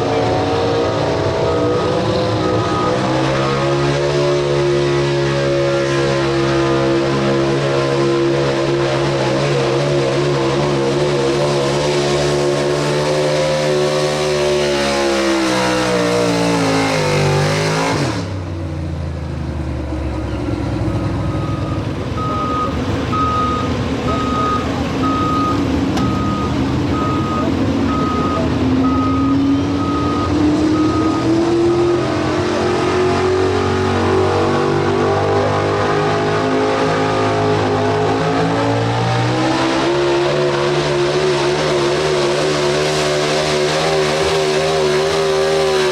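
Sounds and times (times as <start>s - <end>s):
truck engine revving hard: 0.0s - 45.9s
backup alarm beeping: 1.3s - 3.7s, 20.2s - 32.0s.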